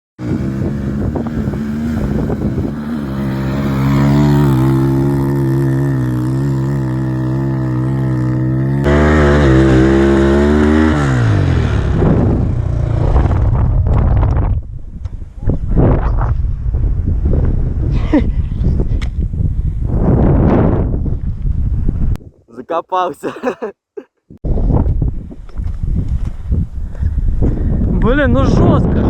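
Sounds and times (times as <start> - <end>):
motorcycle engine revving: 0.2 - 14.7.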